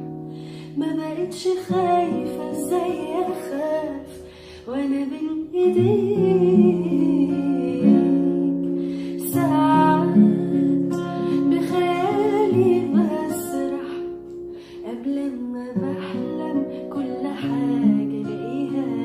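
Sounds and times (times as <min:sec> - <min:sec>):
plucked acoustic guitar: 0:00.0 - 0:19.0
person singing: 0:00.7 - 0:19.0.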